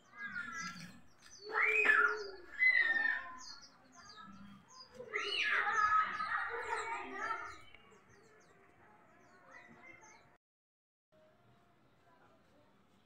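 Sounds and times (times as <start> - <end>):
loud low bird calls: 0.0 - 8.6
birds chirping: 0.0 - 10.4.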